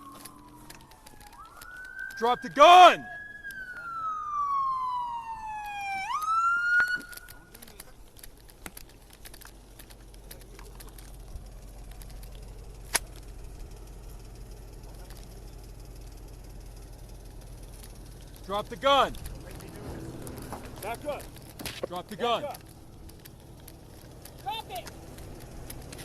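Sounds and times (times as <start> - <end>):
sharp clicks: 0.0 - 2.6, 5.6 - 13.6, 17.4 - 26.0
police siren wailing: 0.0 - 7.6, 22.0 - 23.2
low steady rumble: 0.0 - 26.0.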